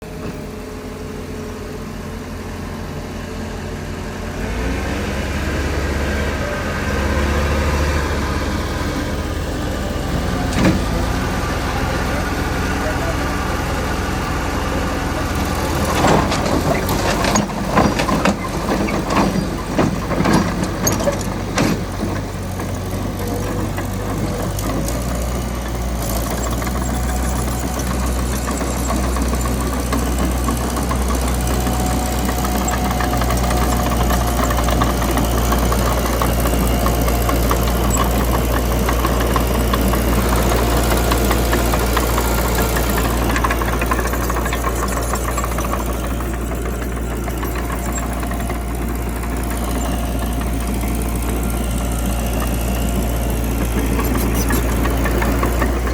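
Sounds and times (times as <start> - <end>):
bulldozer diesel engine clattering: 0.0 - 55.9
metallic clanks and knocks: 15.8 - 22.3.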